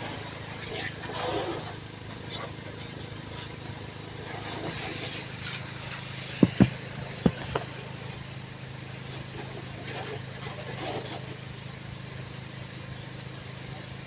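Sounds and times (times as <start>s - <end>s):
hiss: 1.0s - 7.7s
sharp knocks: 6.4s - 7.7s.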